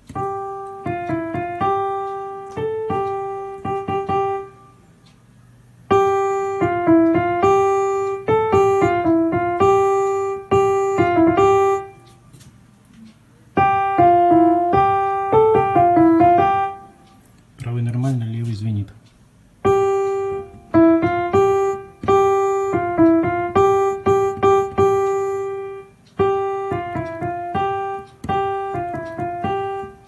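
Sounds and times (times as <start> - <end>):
digital piano notes: 0.0 - 12.3, 13.1 - 30.0
speaker buzzing: 5.8 - 12.4, 13.5 - 19.0, 19.6 - 30.0.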